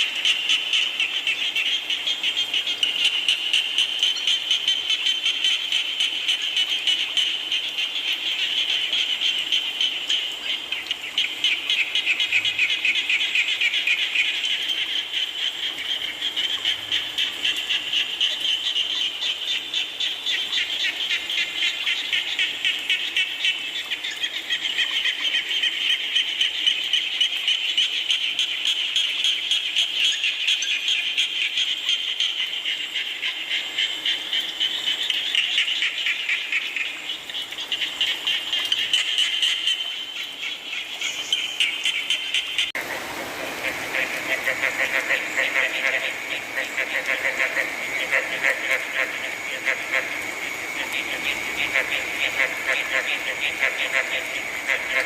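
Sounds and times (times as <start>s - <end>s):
chorus of frogs trilling: 0.0s - 28.5s, 41.3s - 55.0s.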